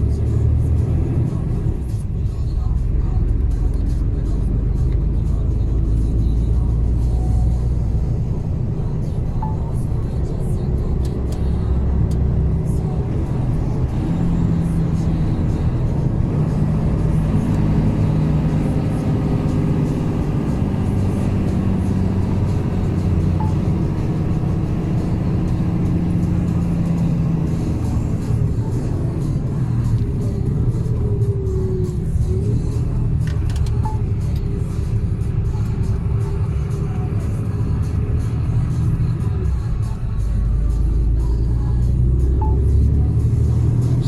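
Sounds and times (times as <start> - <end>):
truck diesel engine droning: 0.0 - 44.0.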